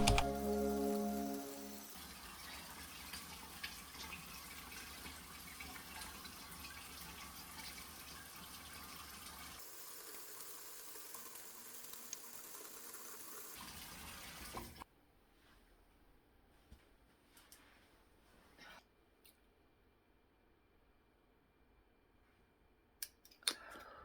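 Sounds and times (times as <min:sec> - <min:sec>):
background music: 0:00.0 - 0:02.0
running water: 0:00.0 - 0:14.8
small drips and ticks: 0:01.9 - 0:14.8.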